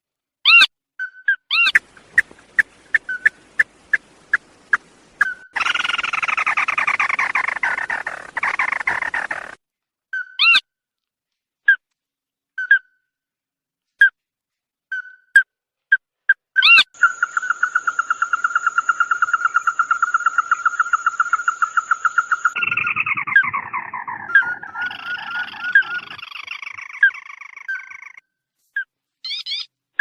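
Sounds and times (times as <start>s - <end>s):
bird calling with sharp notes: 0.5s - 10.7s, 16.6s - 28.2s.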